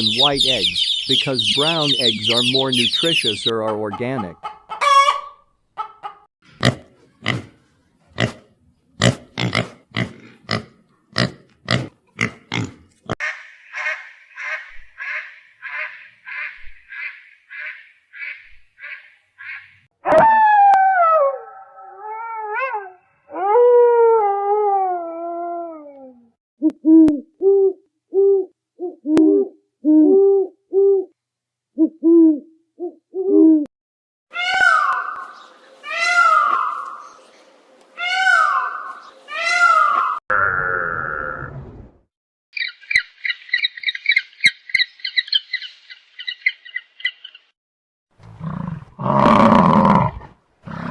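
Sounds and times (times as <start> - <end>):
high chirps: 0.0 - 3.6
long falling howls: 20.0 - 26.3.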